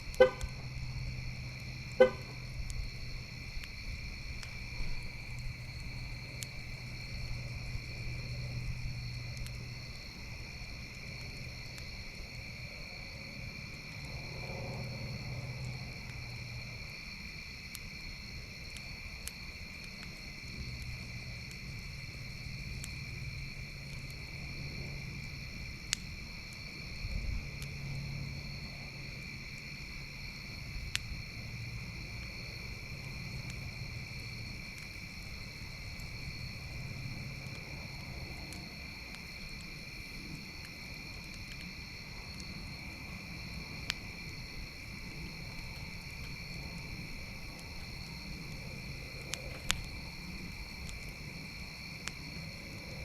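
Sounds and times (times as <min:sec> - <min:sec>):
campfire burning with pops: 0:00.0 - 0:53.0
insects chirping: 0:00.0 - 0:53.0.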